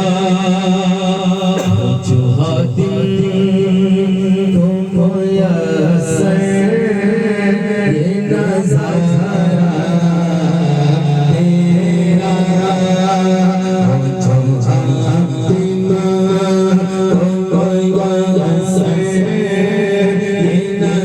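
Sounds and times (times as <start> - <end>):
solo voice singing devotional poem: 0.0 - 21.0.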